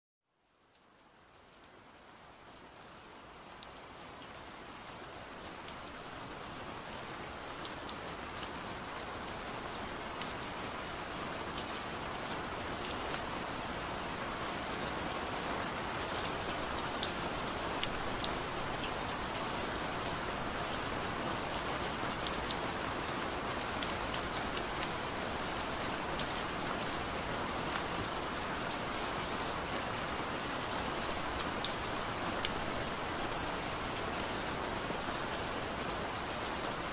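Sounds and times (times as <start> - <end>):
steady rain falling: 0.2 - 36.9.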